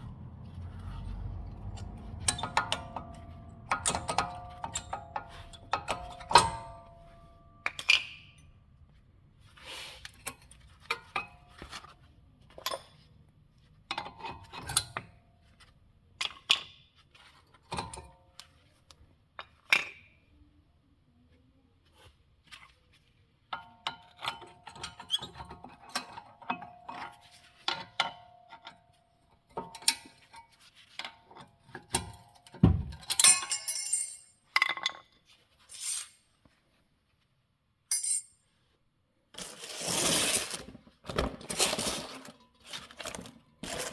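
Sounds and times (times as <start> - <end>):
heavy thunk: 32.6 - 33.0
metal tools clinking: 33.0 - 36.3, 37.9 - 38.4, 41.5 - 43.9.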